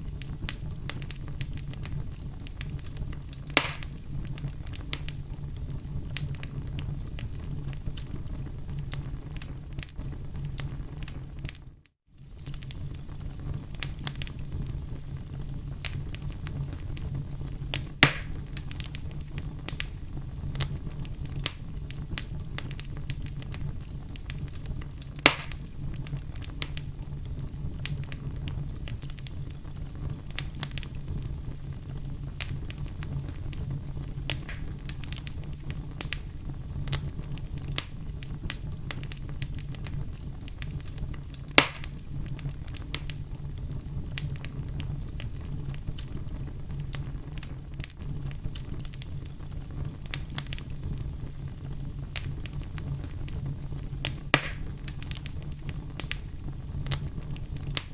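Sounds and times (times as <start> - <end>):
sharp fire pops: 0.0 - 11.6, 12.2 - 57.9
fire rumbling and crackling: 0.0 - 57.9.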